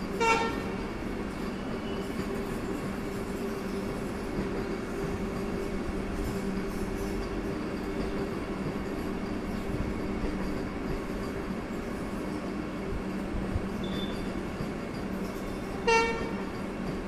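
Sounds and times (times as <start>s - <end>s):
electric train rolling slowly: 0.0s - 17.0s
train horn toot: 0.1s - 0.8s, 15.8s - 16.4s.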